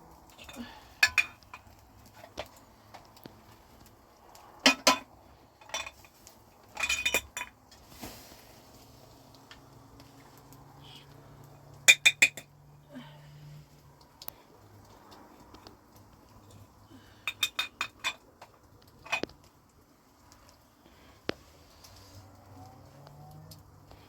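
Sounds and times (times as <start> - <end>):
dishes and cutlery clinking: 0.4 - 1.6, 6.8 - 7.6, 11.9 - 12.5, 17.3 - 18.2.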